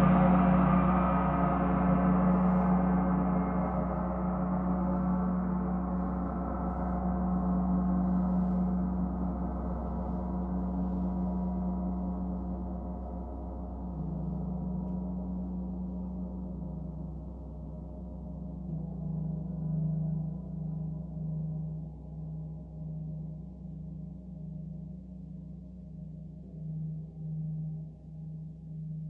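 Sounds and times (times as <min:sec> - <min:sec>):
gong ringing: 0:00.0 - 0:09.3.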